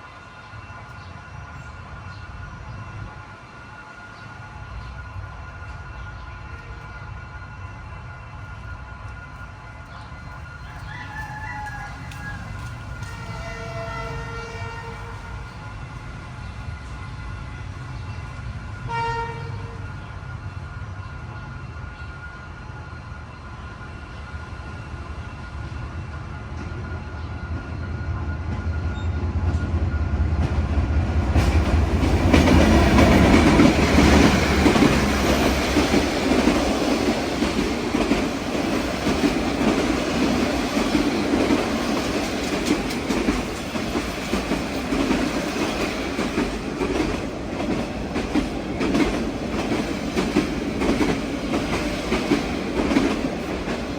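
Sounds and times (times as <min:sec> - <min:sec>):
train wheels running on rails: 0:00.0 - 0:53.9
train horn blast: 0:11.0 - 0:15.6, 0:18.8 - 0:20.2.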